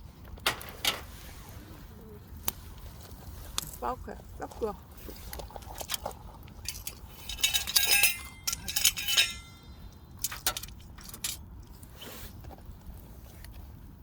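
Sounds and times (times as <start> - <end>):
tableware clinking: 6.7 - 9.6.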